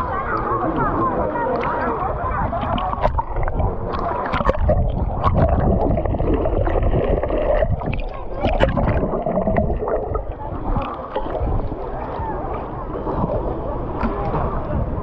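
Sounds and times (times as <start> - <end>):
sea water sloshing: 0.0 - 15.0
low rumble: 2.7 - 12.0.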